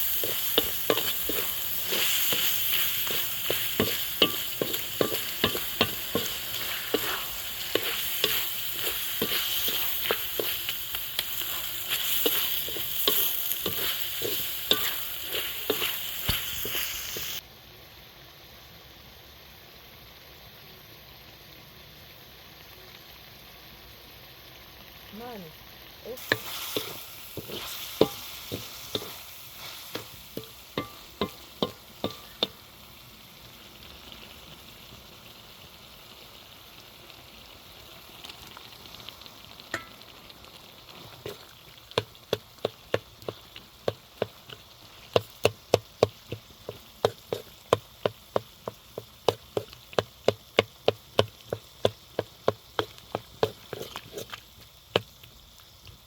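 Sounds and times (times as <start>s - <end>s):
food sizzling in a pan: 0.0s - 56.0s
utensil knocking against pan: 3.6s - 6.3s, 29.9s - 32.6s.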